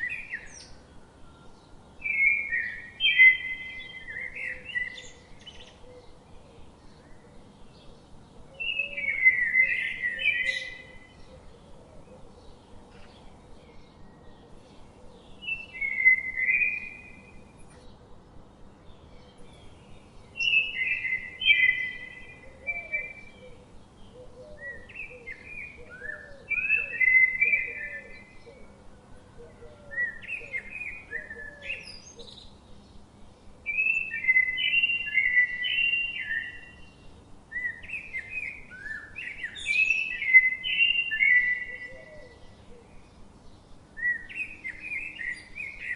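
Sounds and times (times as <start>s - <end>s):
faint low-pitched bird notes: 0.0s - 45.9s
songbird whistling: 2.0s - 5.7s, 8.6s - 11.1s, 15.4s - 17.4s, 20.4s - 23.6s, 24.6s - 28.3s, 33.7s - 42.4s, 44.0s - 45.9s.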